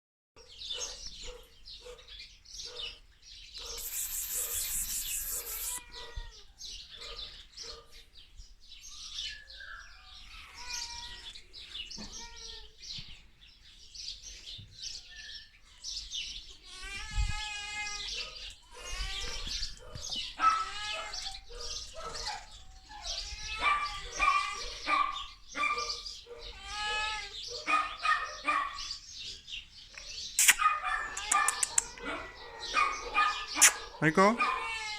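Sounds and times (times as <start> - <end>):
dog whining and yipping: 3.8 - 6.2, 18.2 - 25.0.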